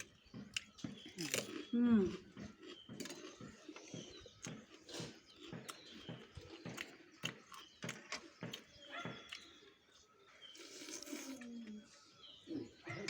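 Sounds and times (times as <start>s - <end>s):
wet chewing clicks and smacks: 0.0s - 9.9s
faint bird chirps: 0.0s - 13.0s.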